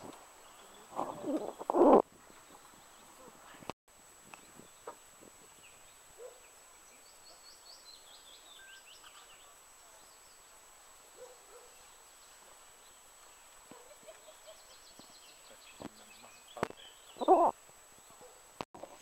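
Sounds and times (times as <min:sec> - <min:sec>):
small bird singing: 0:04.4 - 0:10.6, 0:14.0 - 0:18.3.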